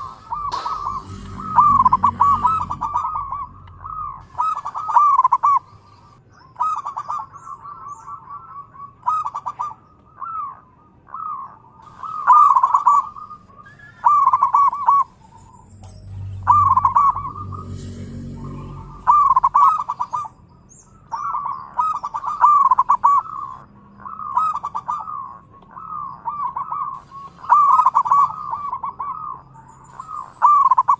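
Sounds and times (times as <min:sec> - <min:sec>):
low rumble: 0:00.0 - 0:04.8, 0:15.1 - 0:21.1
doves cooing: 0:00.0 - 0:15.5, 0:16.4 - 0:20.4, 0:21.0 - 0:30.9.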